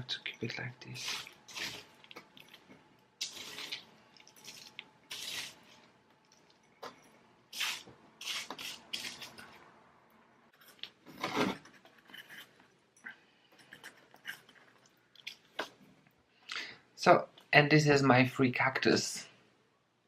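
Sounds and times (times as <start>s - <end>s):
objects handled rubbing and scraping: 10.6s - 12.8s, 13.5s - 14.9s.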